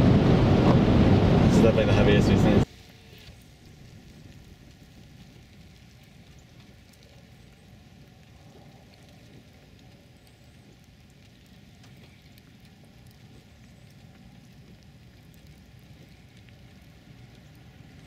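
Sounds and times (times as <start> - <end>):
vehicle rumbling on road: 0.0 - 2.7
snow ticking on vehicle: 0.0 - 18.0.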